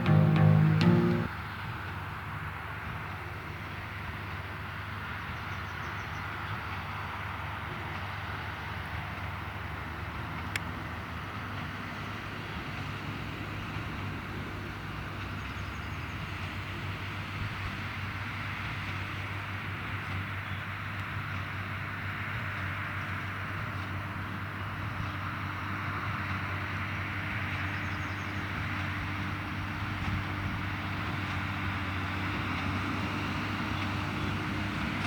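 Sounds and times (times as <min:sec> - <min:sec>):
tractor and baler droning: 0:00.0 - 0:01.3, 0:23.6 - 0:35.0.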